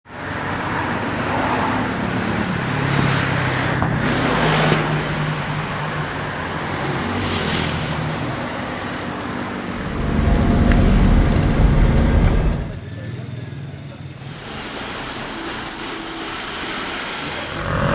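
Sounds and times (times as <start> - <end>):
vehicles going by: 0.1 - 17.9
vehicle engines humming: 0.2 - 13.0, 14.4 - 17.9
heavy low rumble: 9.7 - 12.8, 17.5 - 17.9.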